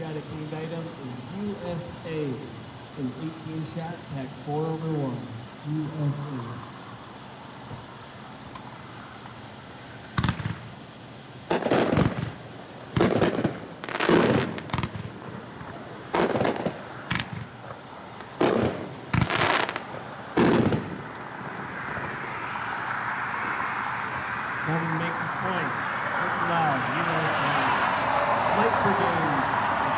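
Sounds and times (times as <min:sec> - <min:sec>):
fireworks booms: 0:10.1 - 0:22.2.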